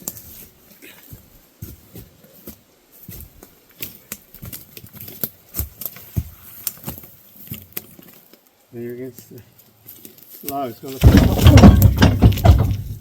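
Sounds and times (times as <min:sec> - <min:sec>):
log knocking and scraping: 0:09.9 - 0:13.0.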